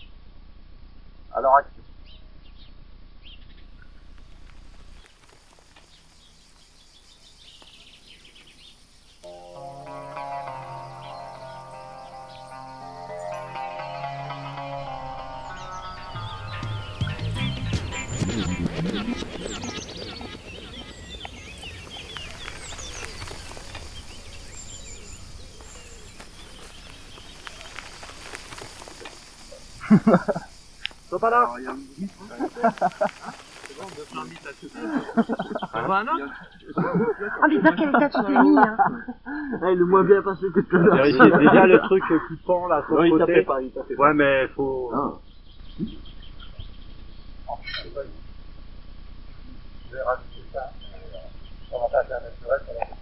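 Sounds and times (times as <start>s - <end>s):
small birds chirping: 0.0s - 0.2s, 1.1s - 48.3s, 49.1s - 53.0s
music with sustained notes: 9.2s - 28.9s
low hum: 9.2s - 31.2s
faint clicks: 30.8s - 31.1s, 32.4s - 34.7s.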